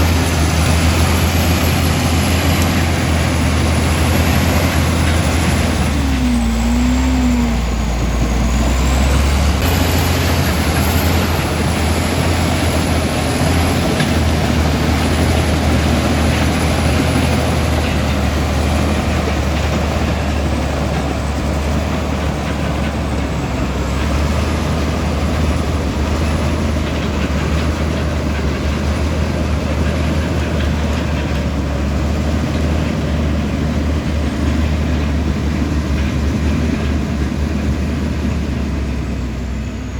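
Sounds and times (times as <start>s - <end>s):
bulldozer diesel engine drone: 0.0s - 39.9s.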